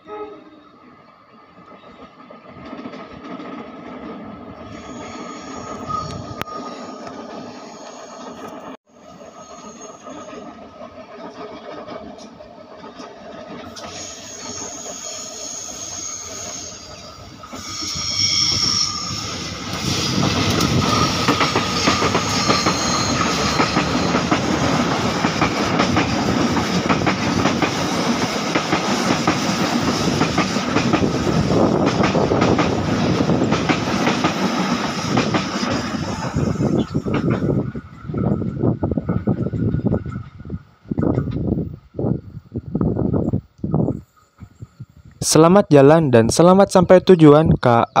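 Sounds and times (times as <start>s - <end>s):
train wheels clickety-clack: 1.6s - 7.5s, 9.4s - 41.7s
wheels squealing on a curve: 4.6s - 8.4s, 13.8s - 24.4s.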